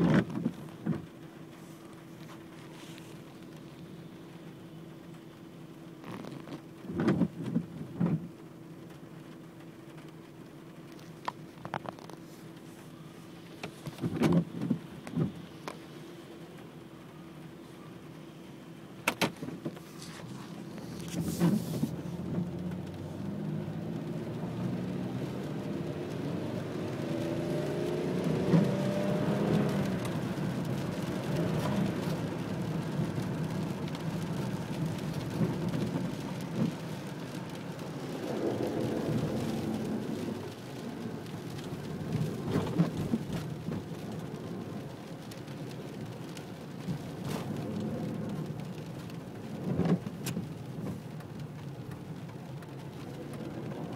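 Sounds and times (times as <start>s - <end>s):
rain: 0.0s - 53.9s
passing vehicles: 19.0s - 53.9s.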